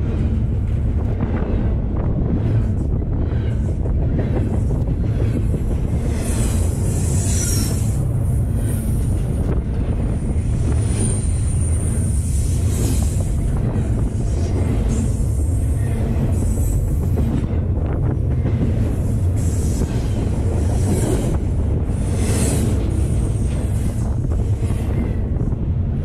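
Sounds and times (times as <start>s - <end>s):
freight train wheels rumbling on rail: 0.0s - 26.0s
high-pitched wheel squeal: 6.2s - 8.0s.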